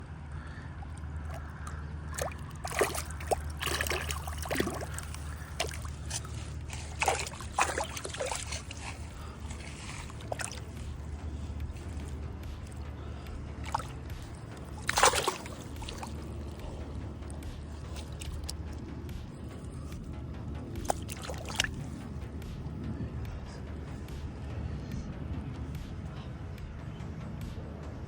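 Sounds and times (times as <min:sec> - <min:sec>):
steady low rumble: 0:00.0 - 0:28.0
water splashing from fish thrashing: 0:01.2 - 0:18.8, 0:20.8 - 0:22.0.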